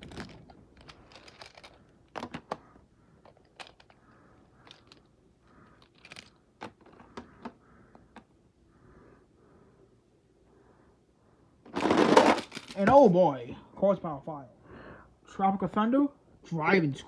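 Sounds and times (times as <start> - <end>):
toy trucks clicking and clattering: 0.0 - 8.3, 11.7 - 13.0.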